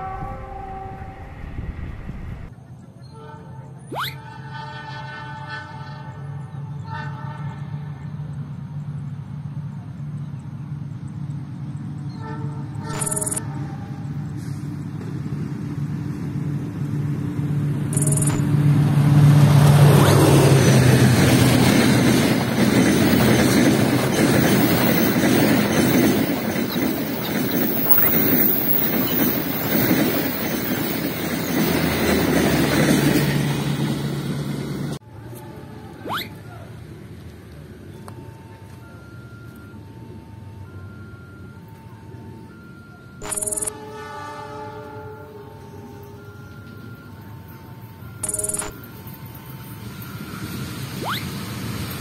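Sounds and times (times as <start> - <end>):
diesel locomotive engine hum: 0.0 - 52.0
train wheels rumbling and clattering: 18.5 - 35.0.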